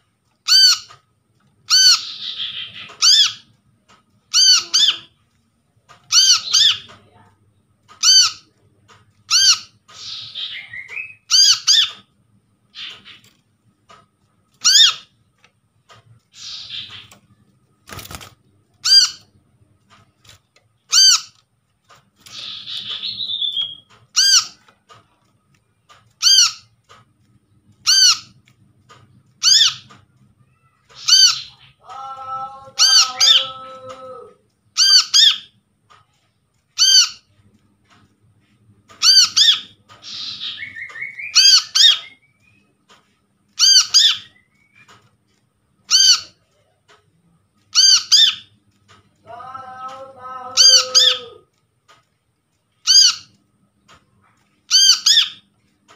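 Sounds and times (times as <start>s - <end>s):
bird twittering: 16.3s - 17.2s, 22.3s - 24.6s, 39.0s - 42.7s, 54.7s - 55.5s.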